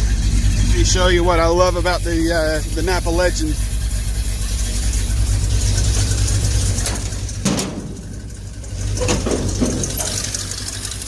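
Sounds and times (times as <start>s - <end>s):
truck engine idling: 0.0s - 11.0s
handling noises: 5.7s - 10.5s.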